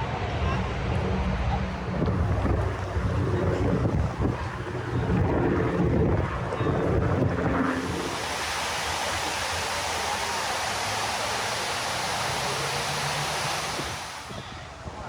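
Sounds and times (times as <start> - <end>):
water cascading down walls: 5.7 - 14.5.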